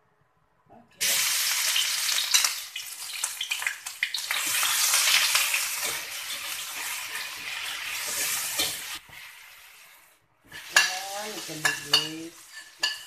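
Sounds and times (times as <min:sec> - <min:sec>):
paste sizzling in hot oil: 0:01.0 - 0:13.0
spatula scraping a wok: 0:04.4 - 0:13.0.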